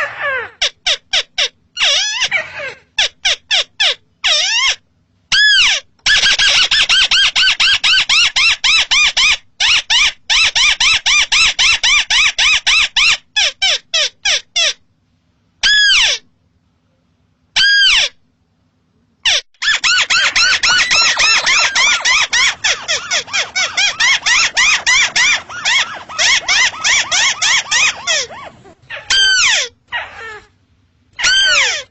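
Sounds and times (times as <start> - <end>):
crake calling: 19.6 - 30.3.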